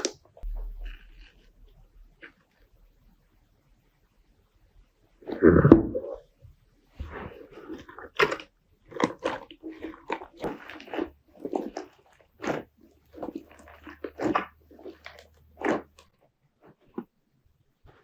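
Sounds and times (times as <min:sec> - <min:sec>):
slime squishing and popping: 0:07.7 - 0:16.1.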